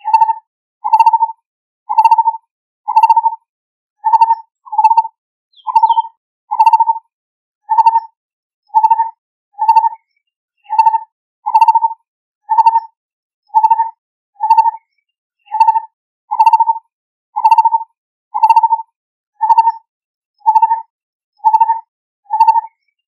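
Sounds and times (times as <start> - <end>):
barbet calling: 1.9 - 2.3, 2.9 - 3.3, 4.0 - 7.0, 8.7 - 9.0, 10.6 - 11.9, 13.6 - 13.8, 15.5 - 16.7, 17.4 - 17.7, 18.4 - 18.8.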